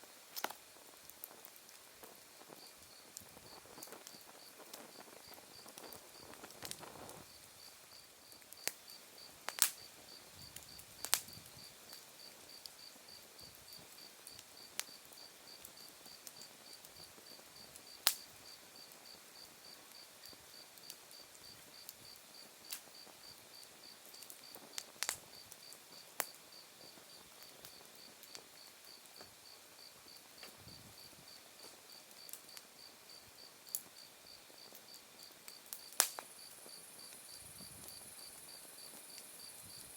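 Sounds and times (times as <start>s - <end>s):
wood fire crackling and popping: 0.0s - 39.9s
crickets chirping: 2.4s - 15.0s, 28.9s - 39.9s.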